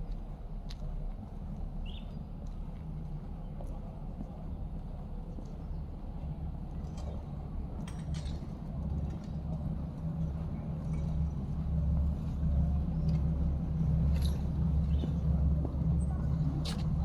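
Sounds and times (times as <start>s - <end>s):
vehicle engine rumble: 8.3s - 17.0s.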